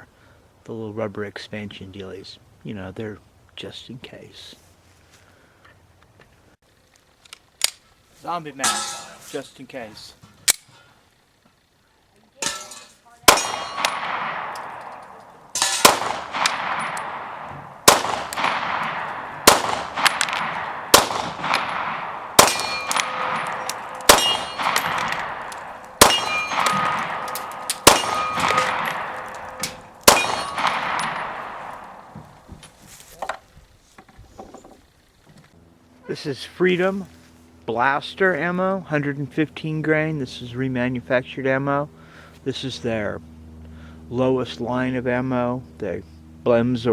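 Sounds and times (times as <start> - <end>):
pistol shots ringing: 12.4 - 32.4.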